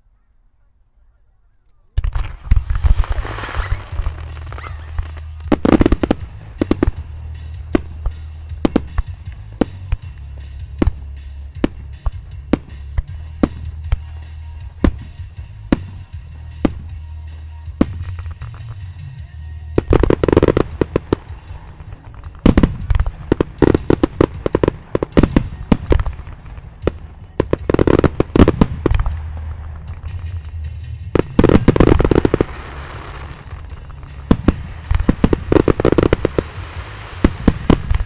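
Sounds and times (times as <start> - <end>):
fireworks bursting with bangs: 2.0 - 38.0
music with heavy bass: 3.1 - 38.0
hissing rush: 31.2 - 38.0.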